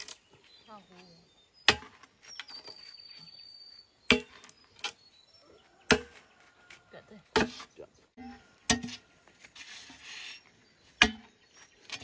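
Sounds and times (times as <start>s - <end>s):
blade chopping wood: 1.7s - 2.0s, 4.1s - 4.5s, 5.9s - 6.2s.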